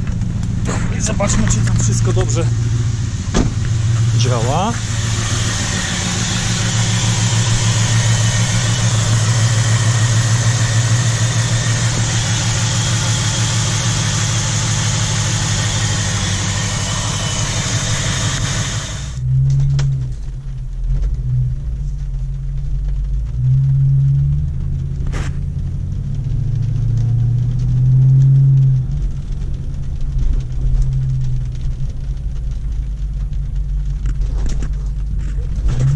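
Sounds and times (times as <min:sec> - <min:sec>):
engine hiss: 0:00.0 - 0:19.2
car engine running: 0:00.0 - 0:35.9.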